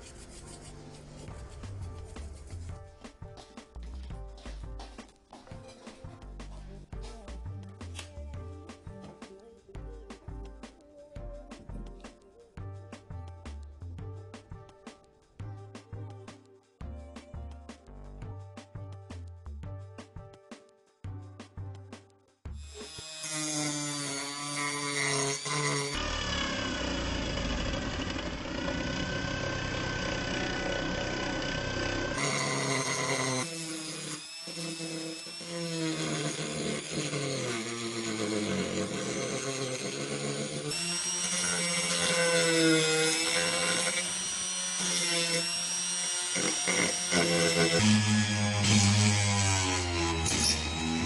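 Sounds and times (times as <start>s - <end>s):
power tool motor whine: 25.2s - 51.0s.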